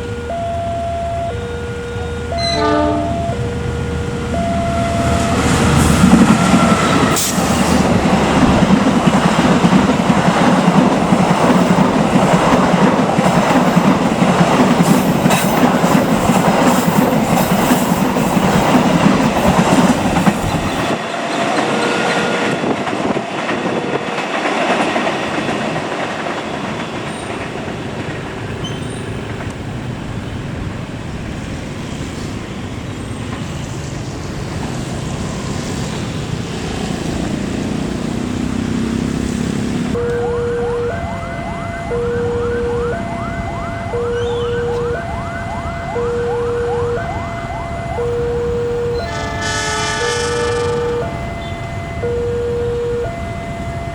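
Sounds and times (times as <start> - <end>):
train horn: 0.0 - 3.6, 48.3 - 53.7
train wheels clattering: 5.3 - 29.6.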